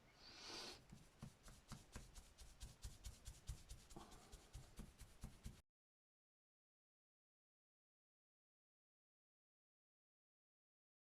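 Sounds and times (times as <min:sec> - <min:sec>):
scratchy strokes on paper: 0:00.4 - 0:05.6.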